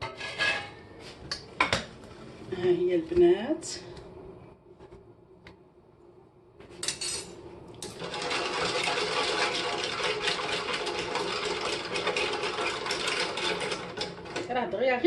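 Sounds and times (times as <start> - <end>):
utensil scraping saucepan: 0.0 - 0.8, 8.0 - 14.2.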